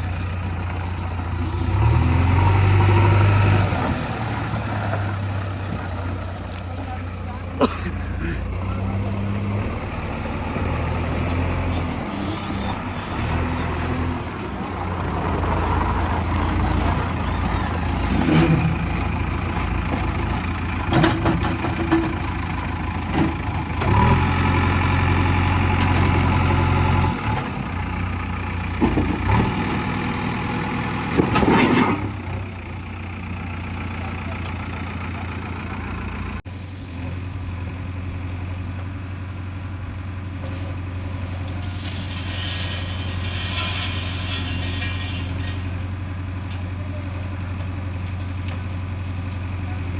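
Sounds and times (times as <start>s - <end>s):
diesel backhoe engine working: 0.0s - 49.9s.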